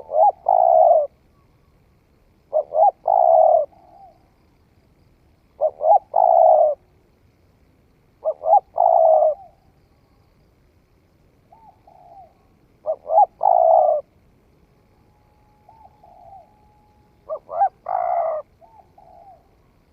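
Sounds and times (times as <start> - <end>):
dove cooing: 0.0 - 1.2, 2.5 - 4.4, 5.6 - 6.8, 8.2 - 9.7, 11.5 - 14.1, 15.6 - 19.8.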